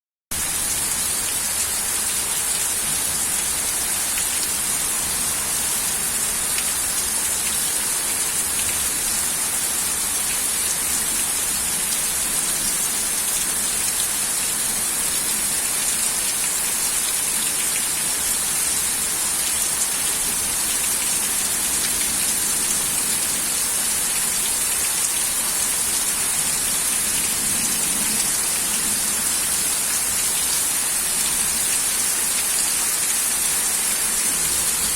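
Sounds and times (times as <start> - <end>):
heavy rain falling: 0.4 - 34.9.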